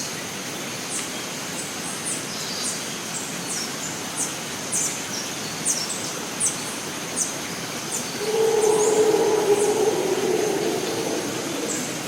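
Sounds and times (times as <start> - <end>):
steady hiss: 5.9 - 12.0
high falling chirps: 8.2 - 12.0.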